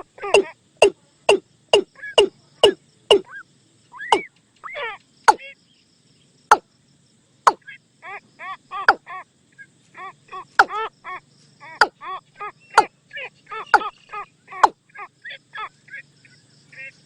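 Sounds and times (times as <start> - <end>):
watercock calling: 0.0 - 3.4, 4.0 - 5.5, 8.7 - 9.1, 10.3 - 10.9, 11.6 - 15.1.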